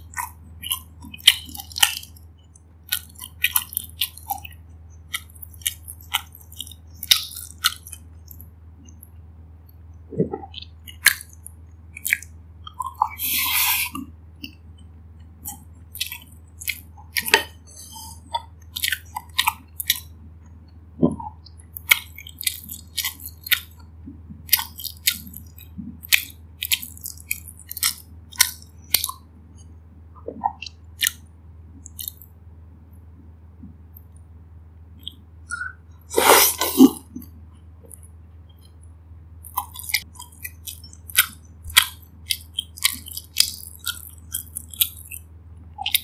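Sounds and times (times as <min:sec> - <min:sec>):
close chewing of rice: 0:00.0 - 0:09.0, 0:10.3 - 0:20.3, 0:21.4 - 0:29.3, 0:30.5 - 0:32.3, 0:39.4 - 0:46.0
steady low hum: 0:00.0 - 0:46.0
food crunch: 0:02.8 - 0:08.5, 0:15.4 - 0:20.2, 0:21.7 - 0:29.2, 0:31.8 - 0:32.3, 0:39.4 - 0:46.0
wet mouth clicks: 0:10.1 - 0:14.6, 0:30.2 - 0:32.3, 0:35.0 - 0:38.8, 0:39.4 - 0:46.0.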